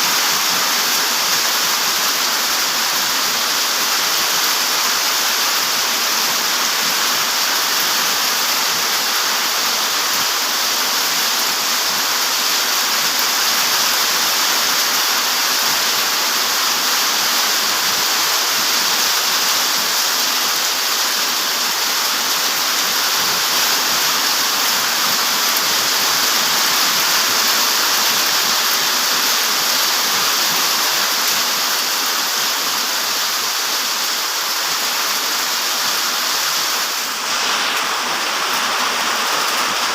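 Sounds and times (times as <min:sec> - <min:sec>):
light rain and strong wind: 0:00.0 - 0:39.9.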